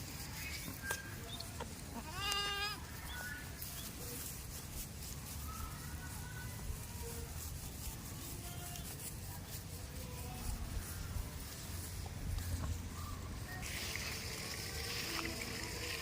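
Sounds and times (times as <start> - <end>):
farmyard background noise: 0.0 - 16.0
goat bleating: 1.7 - 2.8.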